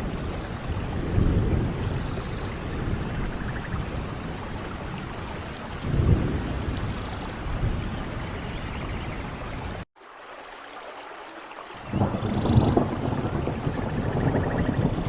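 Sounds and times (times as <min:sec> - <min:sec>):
thunder rumbling: 0:00.0 - 0:08.9, 0:11.9 - 0:15.0
steady rain: 0:00.0 - 0:15.0.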